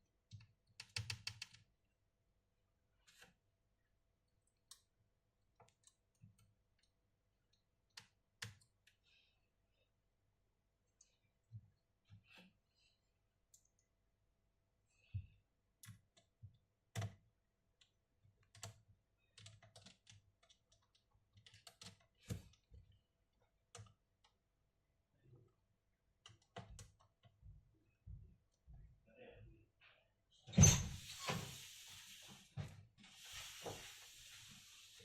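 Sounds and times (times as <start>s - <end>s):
clicks and taps on a laptop: 0.3s - 1.6s.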